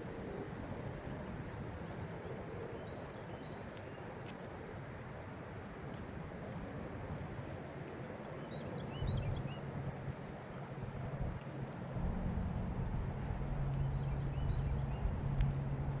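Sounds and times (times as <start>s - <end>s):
low background rush: 8.1s - 16.0s.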